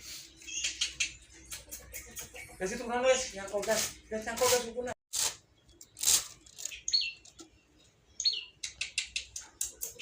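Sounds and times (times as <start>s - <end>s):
songbird chirping: 0.0s - 4.4s, 5.3s - 10.0s
sharp ticking bird notes: 0.2s - 3.3s, 5.4s - 10.0s.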